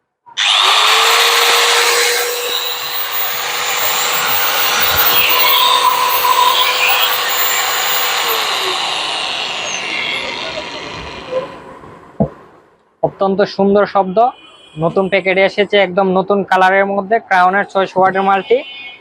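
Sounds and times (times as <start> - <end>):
angle grinder whining: 0.4 - 11.8.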